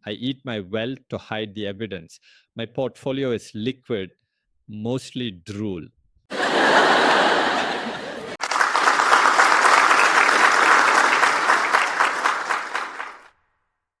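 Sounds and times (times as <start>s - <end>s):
audience applause: 6.4s - 13.3s.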